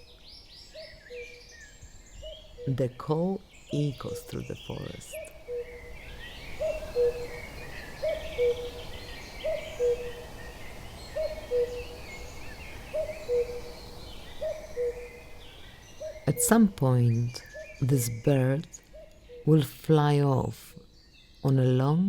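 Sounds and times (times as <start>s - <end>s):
small birds chirping faintly: 0.0s - 22.0s
cuckoo calling: 3.8s - 19.8s.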